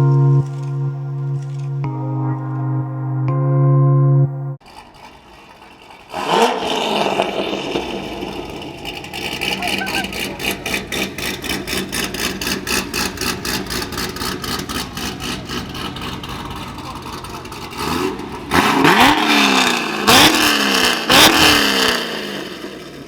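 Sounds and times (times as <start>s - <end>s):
car engine running and revving: 4.6s - 23.0s.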